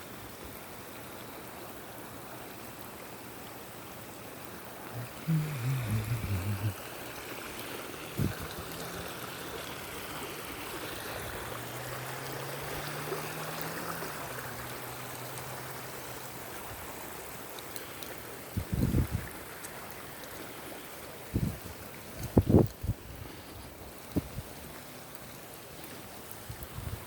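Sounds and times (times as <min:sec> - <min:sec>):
water rushing over ground: 0:00.0 - 0:27.0.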